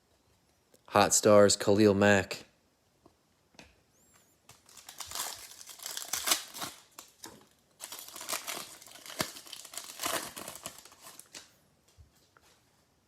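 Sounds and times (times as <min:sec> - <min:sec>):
wrapper crinkling and tearing: 0:04.6 - 0:11.5.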